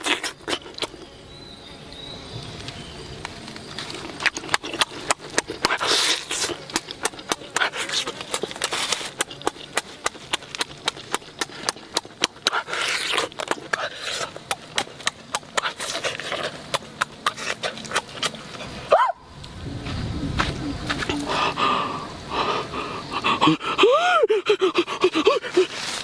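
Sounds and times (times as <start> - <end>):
person chewing with lip-smacking: 0.0 - 1.0, 3.8 - 18.8.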